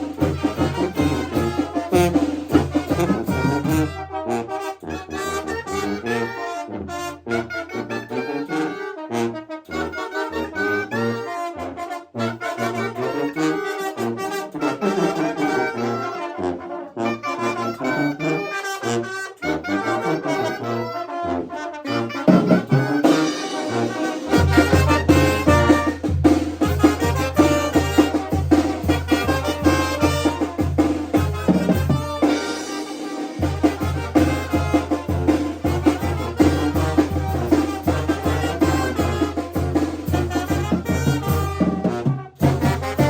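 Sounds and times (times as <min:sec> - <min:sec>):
brass band playing: 0:00.0 - 0:43.0.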